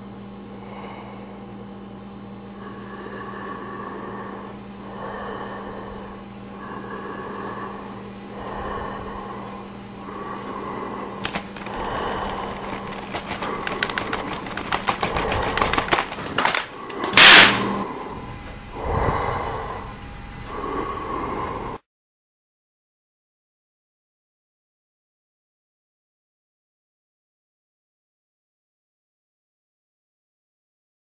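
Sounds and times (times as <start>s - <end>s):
steady low hum: 0.0s - 21.9s
sharp clicks and knocks: 11.2s - 17.7s
loud harsh burst: 11.2s - 17.9s.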